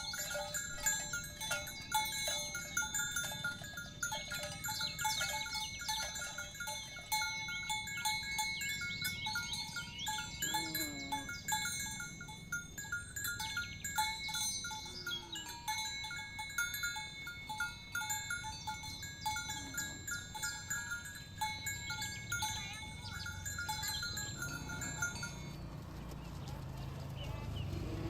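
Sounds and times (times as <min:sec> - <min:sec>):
small bells clinking: 0:00.0 - 0:28.0.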